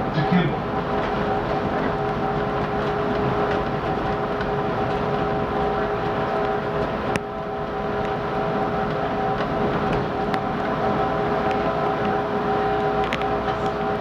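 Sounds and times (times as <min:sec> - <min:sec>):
train car hum and rumble: 0:00.0 - 0:14.0.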